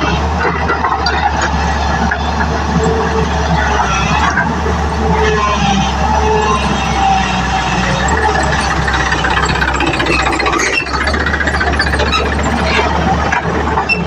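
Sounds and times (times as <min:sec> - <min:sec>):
diesel engine running: 0:00.0 - 0:14.0
metal parts rattling and clanking: 0:07.4 - 0:14.0.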